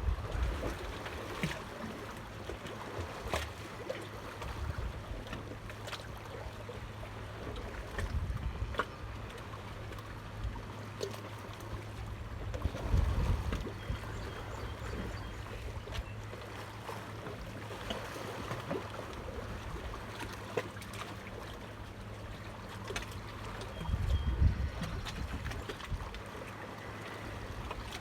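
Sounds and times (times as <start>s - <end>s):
wind buffeting microphone: 8.0s - 8.8s, 12.6s - 15.2s, 23.8s - 26.2s.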